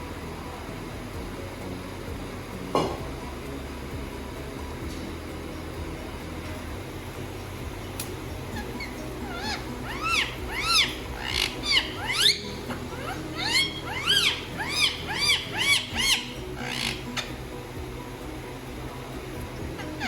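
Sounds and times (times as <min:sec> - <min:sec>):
parrot squawking: 0:08.6 - 0:17.5, 0:19.7 - 0:20.0.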